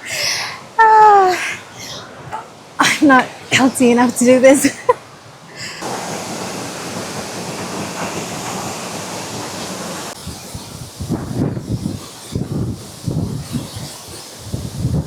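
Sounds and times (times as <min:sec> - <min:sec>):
waterfall rushing: 0:05.8 - 0:11.4.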